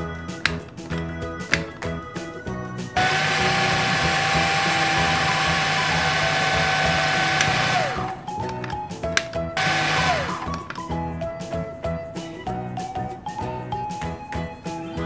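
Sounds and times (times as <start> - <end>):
background music: 0.0 - 15.0
small electric motor whirring: 3.0 - 8.2, 9.6 - 10.6.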